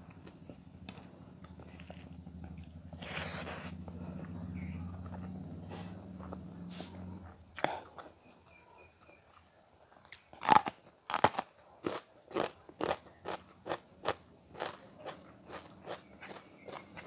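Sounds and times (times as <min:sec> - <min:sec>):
crunchy chewing: 0:00.0 - 0:17.0
crunching bite into chili: 0:00.2 - 0:04.4, 0:10.1 - 0:17.0.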